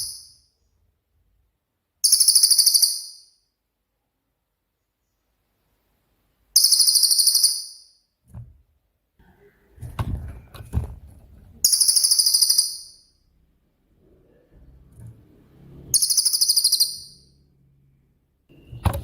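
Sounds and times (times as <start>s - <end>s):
bird trilling: 15.9s - 17.4s.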